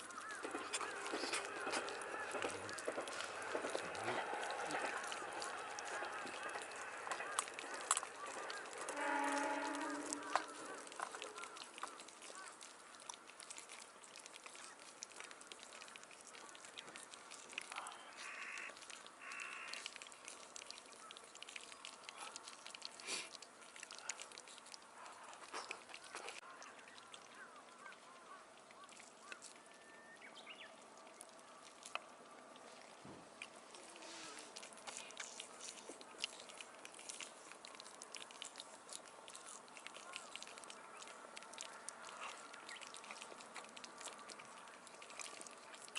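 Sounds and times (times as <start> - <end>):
bird calls: 0.0 - 13.0, 17.7 - 19.8, 25.6 - 31.3, 39.4 - 43.0
small crackles and clicks: 0.0 - 45.9.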